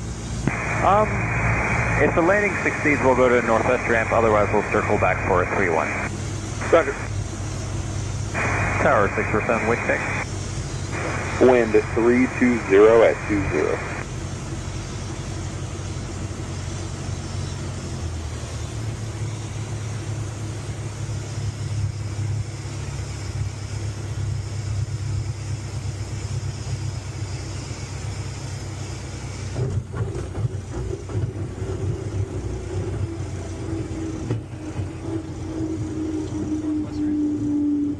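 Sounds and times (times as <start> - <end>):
plane piston engine droning: 0.0 - 37.9
tone sliding downward: 33.8 - 37.9.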